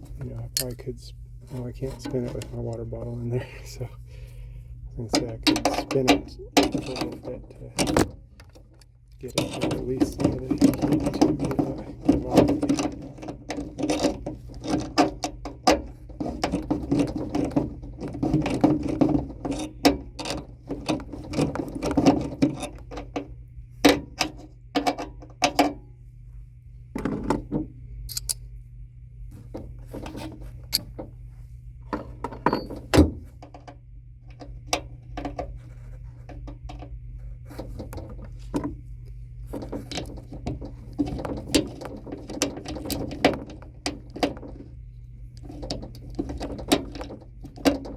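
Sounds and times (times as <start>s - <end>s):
steady low hum: 0.0s - 47.9s
metal tools clinking and rattling: 0.5s - 0.9s, 28.1s - 28.4s.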